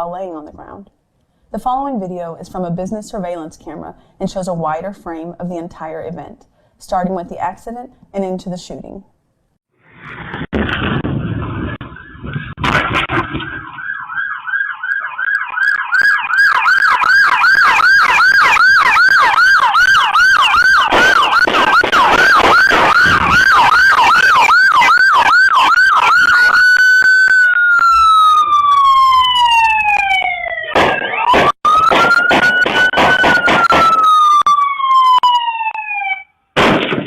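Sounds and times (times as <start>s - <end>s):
sharp bangs: 9.9s - 14.4s, 20.4s - 26.5s, 30.7s - 35.4s, 36.6s - 37.0s
emergency siren: 9.9s - 36.5s.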